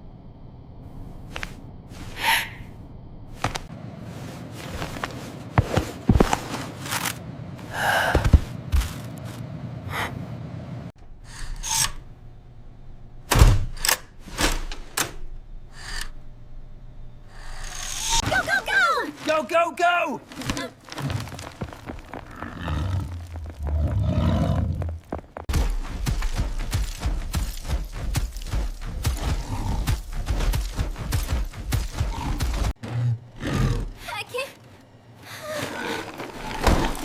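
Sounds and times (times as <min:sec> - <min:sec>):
knocks and thuds: 0:25.4 - 0:32.7.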